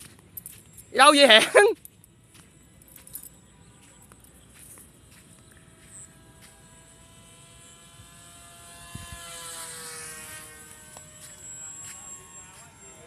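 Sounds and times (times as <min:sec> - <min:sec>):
model airplane motor whining: 0:05.5 - 0:13.0.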